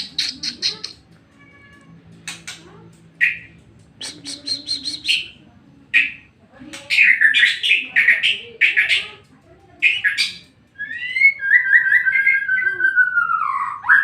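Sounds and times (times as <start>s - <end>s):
bird singing chirps and whistles: 9.9s - 14.0s.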